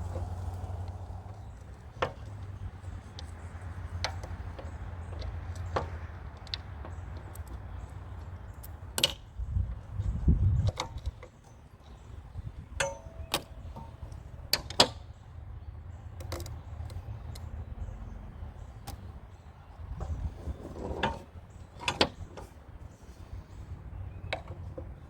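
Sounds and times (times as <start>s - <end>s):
low rumble of handling: 0.0s - 8.3s, 16.5s - 25.0s.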